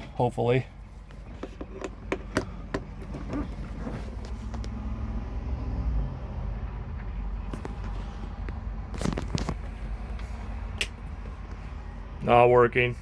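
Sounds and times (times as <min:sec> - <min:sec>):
sharp clicks and knocks: 0:01.1 - 0:03.6.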